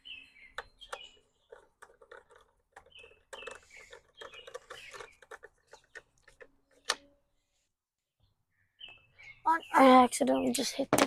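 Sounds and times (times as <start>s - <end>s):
small birds chirping: 0.0s - 11.0s
tools clicking and knocking: 0.5s - 7.0s.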